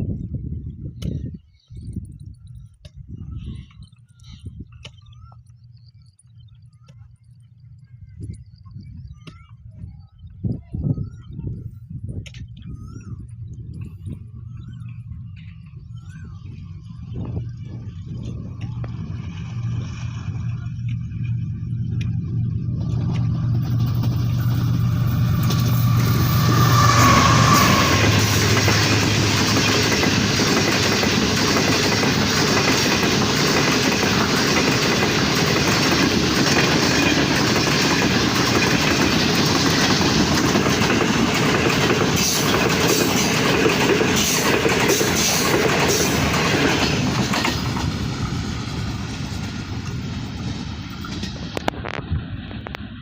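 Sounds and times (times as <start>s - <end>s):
diesel locomotive engine: 12.8s - 53.0s
train wheels on rails: 17.2s - 53.0s.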